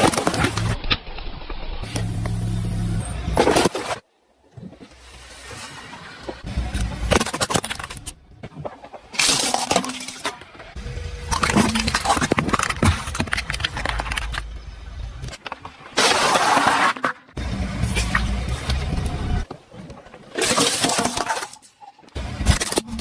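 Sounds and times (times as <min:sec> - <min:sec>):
tyres crushing brittle objects: 0:00.0 - 0:02.4, 0:06.5 - 0:14.6, 0:15.2 - 0:23.0
car running: 0:17.4 - 0:19.8.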